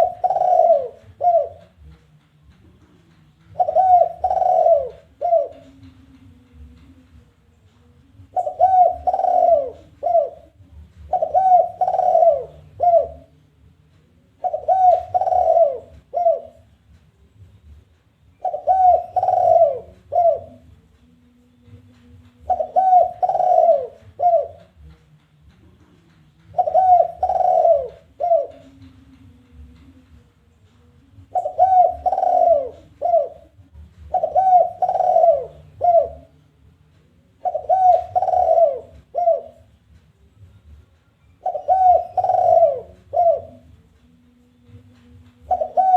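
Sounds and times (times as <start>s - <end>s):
dove cooing: 0.0s - 1.9s, 3.5s - 6.7s, 8.2s - 13.4s, 14.3s - 16.8s, 18.3s - 20.8s, 22.4s - 24.9s, 26.5s - 30.0s, 31.2s - 36.4s, 37.3s - 39.8s, 41.4s - 43.8s, 44.6s - 45.9s.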